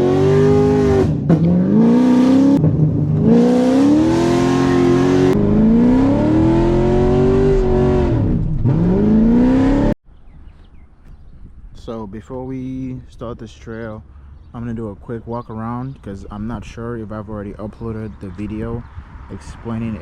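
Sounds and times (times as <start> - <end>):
car engine revving hard: 0.0 - 10.0.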